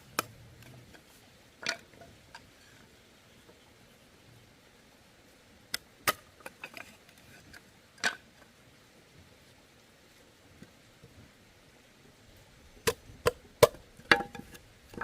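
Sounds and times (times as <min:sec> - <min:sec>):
bamboo knocking: 0:12.8 - 0:15.0.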